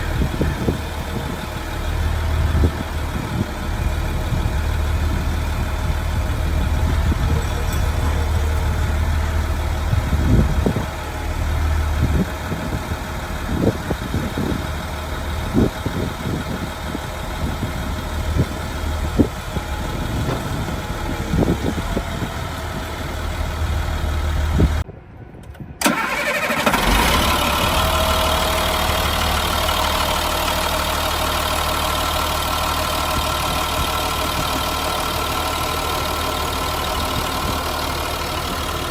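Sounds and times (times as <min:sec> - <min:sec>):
truck engine idling: 0:00.0 - 0:24.8, 0:25.8 - 0:38.9
short engine knocks: 0:19.9 - 0:22.1.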